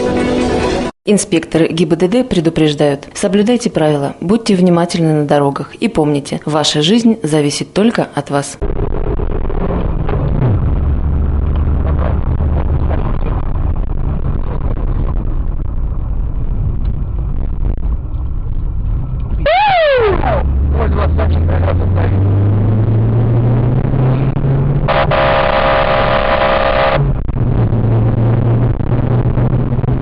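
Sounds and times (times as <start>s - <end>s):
car engine accelerating: 8.6s - 18.2s, 18.8s - 30.0s
road noise: 8.6s - 30.0s
sliding pitch sound: 19.4s - 30.0s
car horn: 24.9s - 27.2s.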